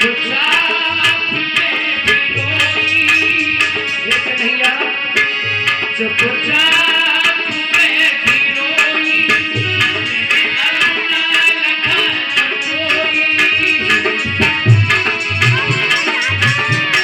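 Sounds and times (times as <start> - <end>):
hand drum beat: 12.8 - 17.0.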